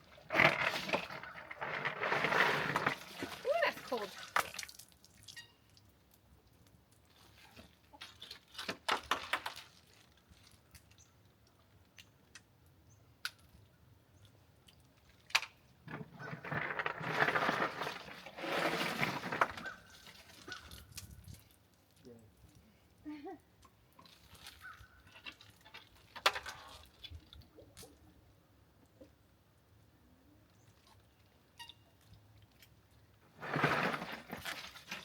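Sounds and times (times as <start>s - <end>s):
water sloshing and splashing: 0.0s - 5.4s.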